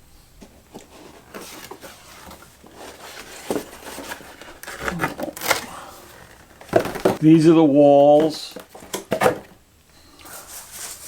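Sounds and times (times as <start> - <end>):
cardboard rustling and knocking: 0.5 - 7.3, 7.9 - 9.6.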